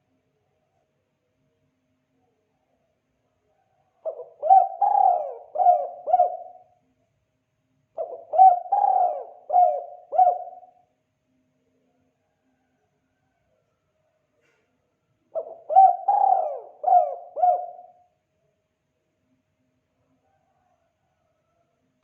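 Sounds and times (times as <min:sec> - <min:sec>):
dove cooing: 0:04.0 - 0:06.8, 0:08.0 - 0:10.8, 0:15.3 - 0:18.0.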